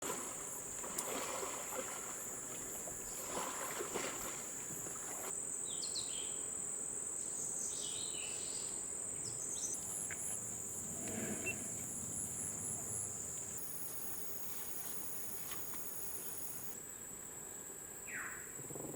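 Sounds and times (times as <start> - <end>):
insects droning: 0.0 - 18.9
bird chirps: 11.1 - 11.7.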